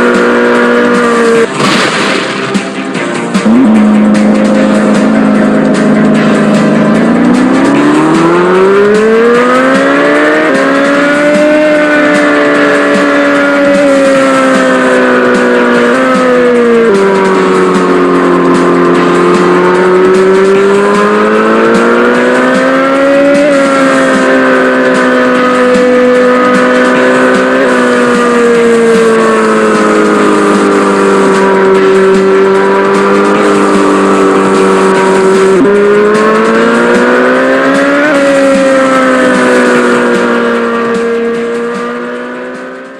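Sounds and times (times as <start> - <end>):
racing engine revving: 0.0 - 42.9.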